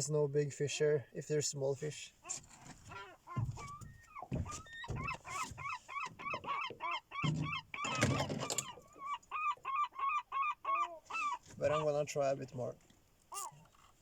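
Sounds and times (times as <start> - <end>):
gulls calling: 2.2 - 12.1, 13.3 - 13.9.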